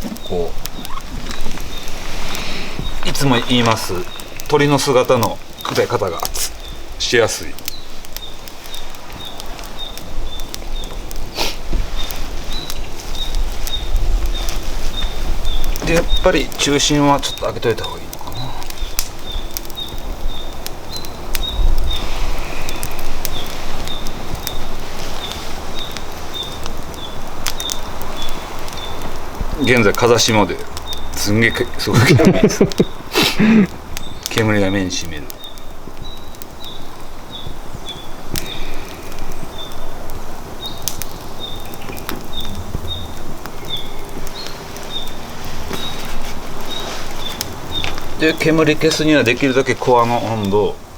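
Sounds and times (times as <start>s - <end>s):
wind on microphone: 0.0s - 4.5s, 7.6s - 17.2s, 18.0s - 29.8s, 35.3s - 49.3s
firewood crackling and popping: 0.0s - 50.9s.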